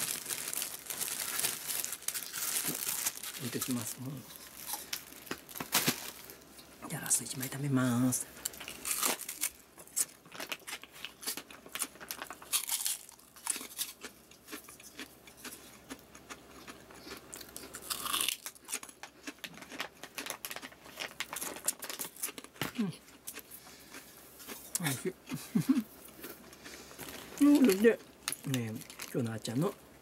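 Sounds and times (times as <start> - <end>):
person crunching shrimp cracker: 0.0 - 6.2, 8.4 - 29.2.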